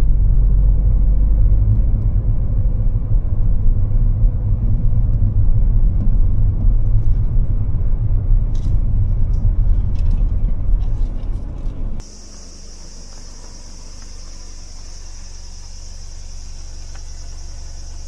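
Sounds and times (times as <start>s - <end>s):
car road rumble: 0.0s - 18.0s.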